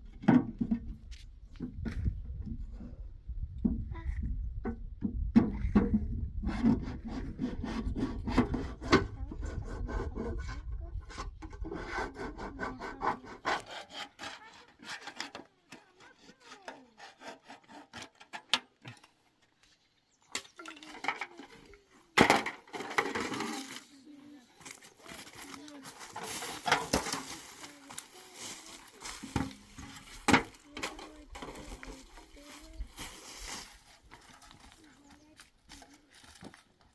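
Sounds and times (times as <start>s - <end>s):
scraping and rubbing on wood: 5.8s - 19.1s, 20.7s - 24.0s, 24.6s - 36.6s.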